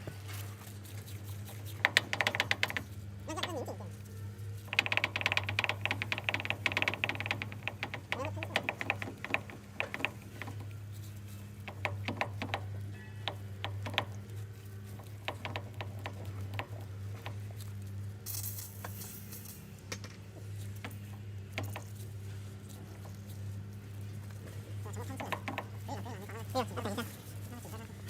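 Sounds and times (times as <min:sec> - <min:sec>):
hand tools clicking on metal: 0:24.3 - 0:28.0.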